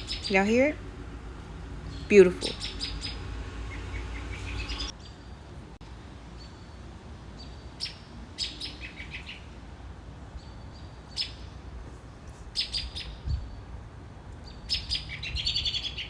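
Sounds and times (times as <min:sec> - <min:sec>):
birds chirping: 0:00.0 - 0:05.6.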